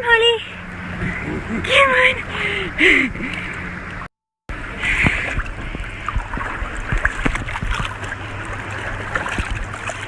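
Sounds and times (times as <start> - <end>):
low steady hum: 0.0 - 10.0
water sloshing against boat hull: 0.0 - 10.0
water splashes and drips: 3.2 - 10.0.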